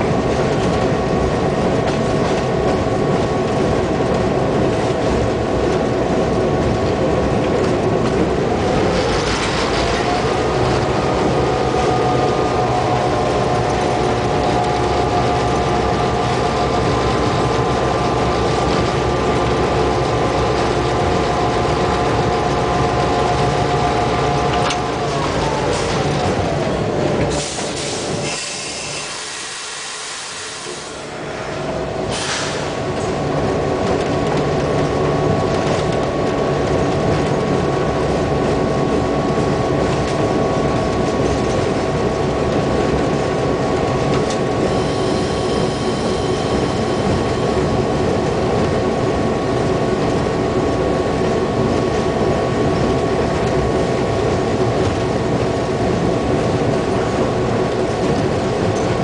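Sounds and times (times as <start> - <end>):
locomotive engine and wheels running: 0.0 - 59.0
high wheel squeal: 27.4 - 31.0, 44.6 - 47.8.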